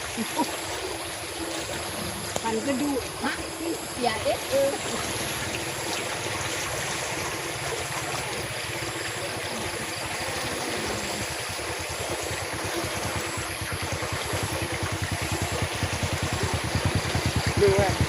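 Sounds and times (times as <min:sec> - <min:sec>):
running water rushing: 0:00.0 - 0:18.0
low rapid throbbing: 0:12.5 - 0:18.0.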